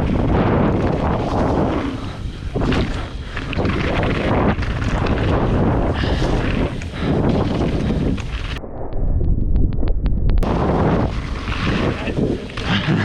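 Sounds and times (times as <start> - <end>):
bike knocks and rattles: 0.0 - 8.5
bike tyre noise: 0.0 - 13.0
wind buffeting a microphone: 0.0 - 13.0.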